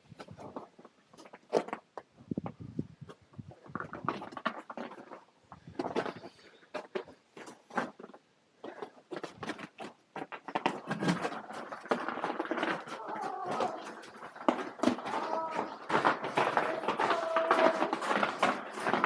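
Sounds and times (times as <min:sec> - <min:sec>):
footsteps crunching on ice and snow: 0:03.5 - 0:19.0
faint indistinct voices echoing: 0:12.9 - 0:19.0.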